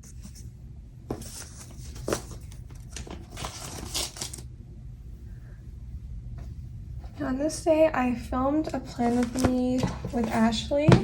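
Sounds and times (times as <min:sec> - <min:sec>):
scratchy paper rustles: 0:01.1 - 0:04.4, 0:08.9 - 0:10.6
steady low rumble: 0:04.5 - 0:11.0.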